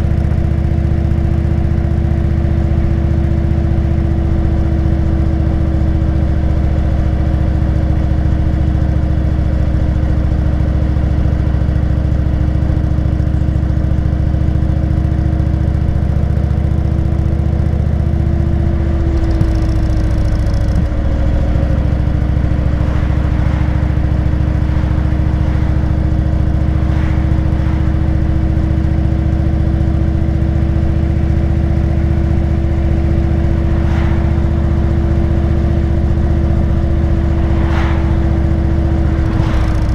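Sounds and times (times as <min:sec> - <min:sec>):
motorcycle engine running: 0:19.3 - 0:30.1.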